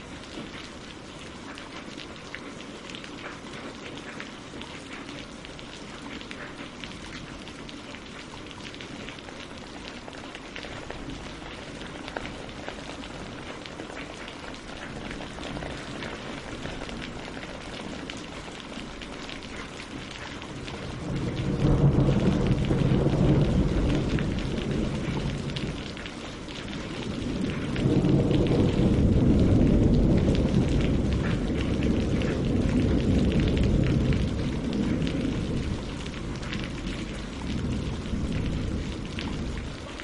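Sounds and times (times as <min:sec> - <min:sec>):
rain on leaves and water: 0:00.0 - 0:40.0
rolling thunder rumble: 0:20.4 - 0:40.0.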